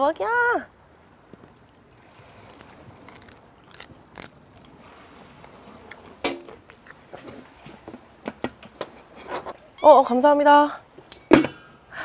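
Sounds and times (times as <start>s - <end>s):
chewing with crunches: 1.4s - 7.8s
wet mouth clicks: 5.9s - 7.1s.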